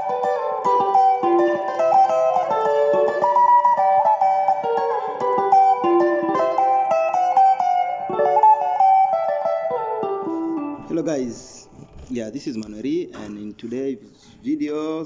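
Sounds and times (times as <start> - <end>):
fast picked guitar lead: 0.0 - 11.8.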